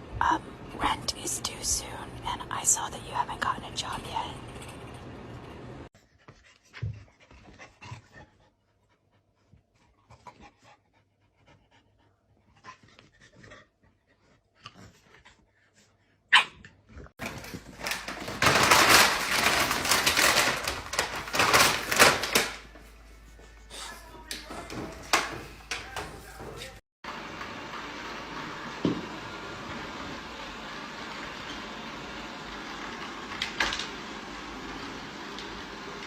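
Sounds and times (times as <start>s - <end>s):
dog panting: 6.0s - 16.2s.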